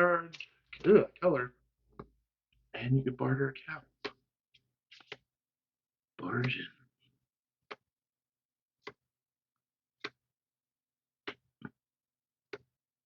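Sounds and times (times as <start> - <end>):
cards flipping with crisp snaps: 4.9 - 5.2.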